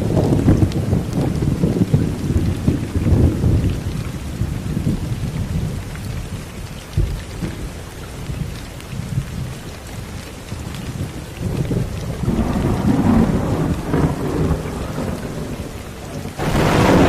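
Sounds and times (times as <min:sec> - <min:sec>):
soft rolling thunder: 0:00.0 - 0:05.8, 0:10.8 - 0:17.0
steady rain falling: 0:00.0 - 0:17.0.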